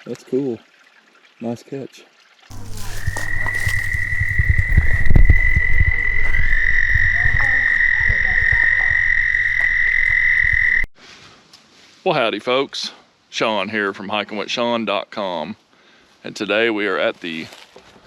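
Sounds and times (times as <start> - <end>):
frog trilling: 2.5 - 10.9
low rumble: 2.5 - 10.9.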